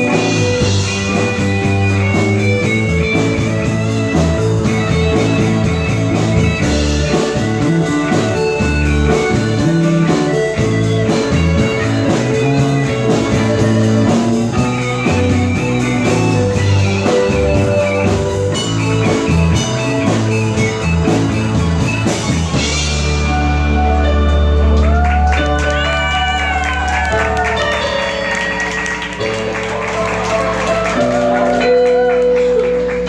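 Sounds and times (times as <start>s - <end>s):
drum kit with cymbal beat: 0.0s - 23.6s
bass guitar: 0.0s - 33.0s
electric guitar lines: 0.0s - 33.0s.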